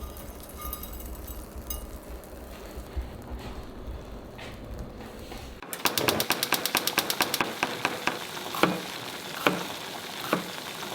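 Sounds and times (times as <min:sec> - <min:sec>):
oil popping in frying pan: 0:05.8 - 0:10.9.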